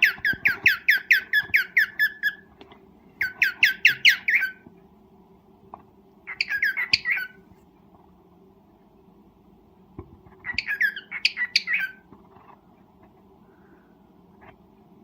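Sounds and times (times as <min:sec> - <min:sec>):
cockatiel chirping: 0:00.0 - 0:02.5, 0:03.2 - 0:04.6, 0:06.3 - 0:07.4, 0:10.4 - 0:12.0.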